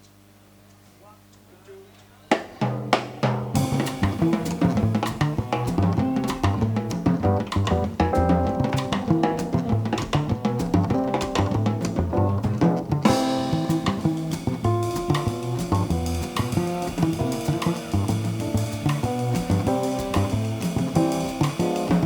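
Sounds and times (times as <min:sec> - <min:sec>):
drum kit: 0:02.3 - 0:22.0
bass: 0:02.9 - 0:22.0
jazz band playing: 0:03.2 - 0:22.0.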